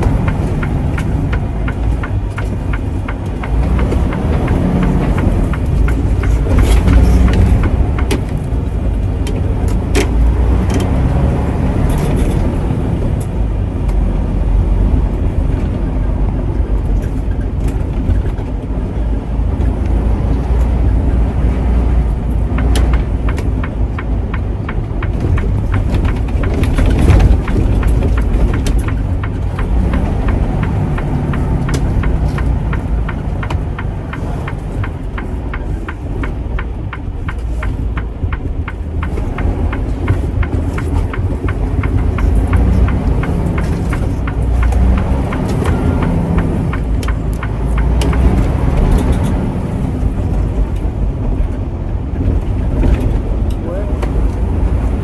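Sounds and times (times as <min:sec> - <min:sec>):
fast regular sharp ticks: 0:00.0 - 0:12.2, 0:20.5 - 0:50.9
truck engine and road rumble: 0:00.0 - 0:55.0.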